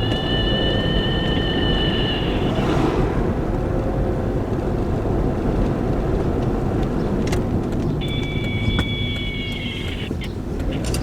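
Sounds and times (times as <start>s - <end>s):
low rumbling noise: 1.6s - 6.2s.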